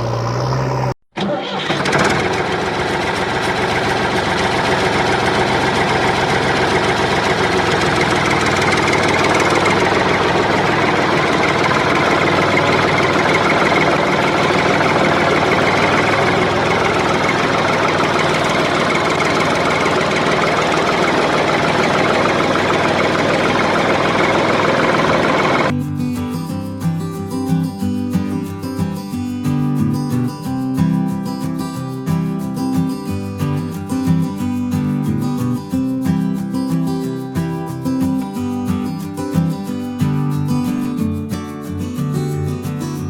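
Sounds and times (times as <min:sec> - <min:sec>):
engine idling: 0:00.0 - 0:25.7.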